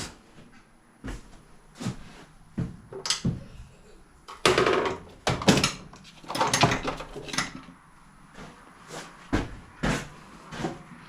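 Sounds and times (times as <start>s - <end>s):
hand tools clattering and scraping: 4.3s - 7.8s.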